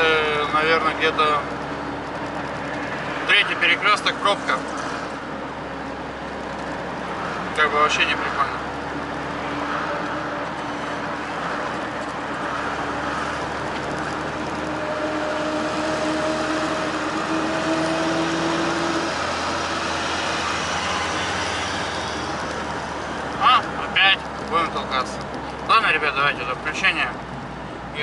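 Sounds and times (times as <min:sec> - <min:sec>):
car engine: 0:00.0 - 0:28.0
road noise: 0:00.0 - 0:28.0.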